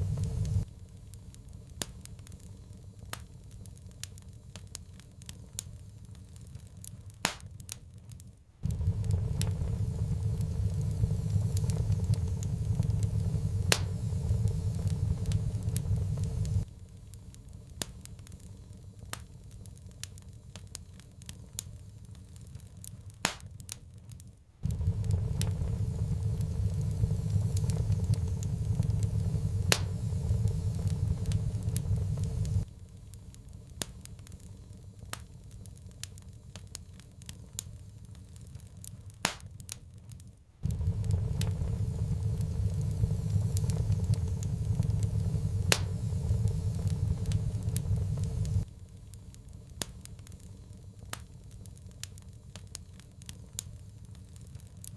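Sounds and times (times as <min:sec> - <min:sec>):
low rumble: 0:00.0 - 0:00.7, 0:08.6 - 0:16.7, 0:24.6 - 0:32.8, 0:40.6 - 0:49.1
sharp pops of fire: 0:00.0 - 0:54.9
wood fire crackling: 0:00.0 - 0:54.9.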